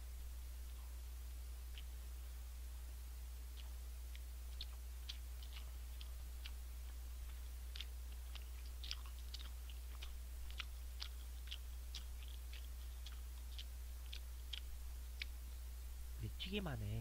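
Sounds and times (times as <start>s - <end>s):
low electrical hum: 0.0s - 17.0s
person chewing crunchy food: 1.6s - 2.4s, 3.4s - 15.5s.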